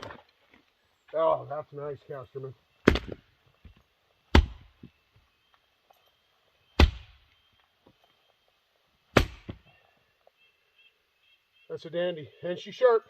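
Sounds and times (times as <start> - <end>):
axe splitting wood: 2.8 - 3.2, 4.3 - 4.8, 6.8 - 7.2, 9.1 - 9.6.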